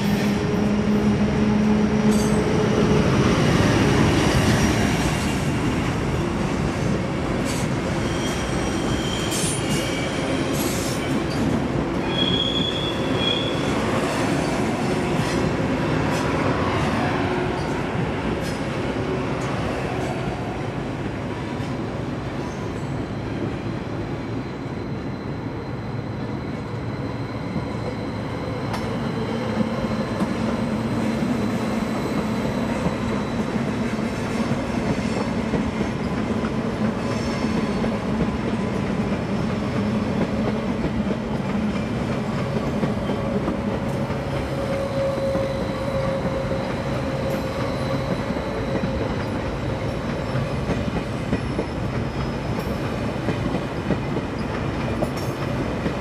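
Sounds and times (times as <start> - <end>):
electric train rolling past: 0.0 - 56.0.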